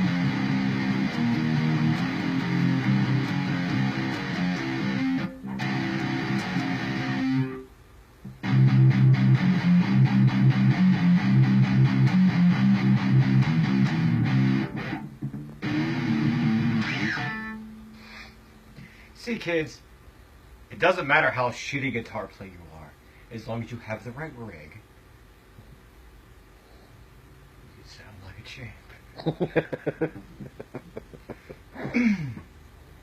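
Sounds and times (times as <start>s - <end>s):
electric guitar riffs: 0.0s - 7.7s, 8.3s - 19.0s.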